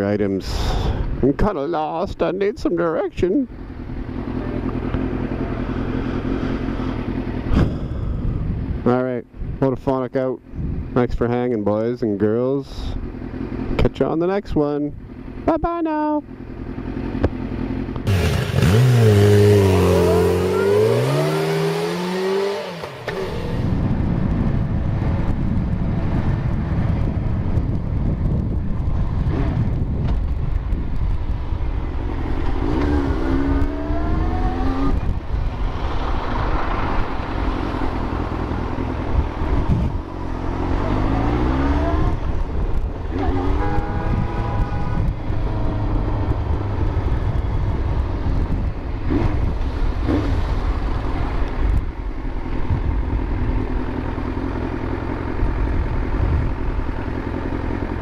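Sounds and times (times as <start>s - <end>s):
motorcycle engine accelerating: 3.2s - 8.9s, 16.2s - 58.0s
wind rush on microphone: 7.4s - 11.2s, 23.2s - 53.8s, 55.4s - 57.0s.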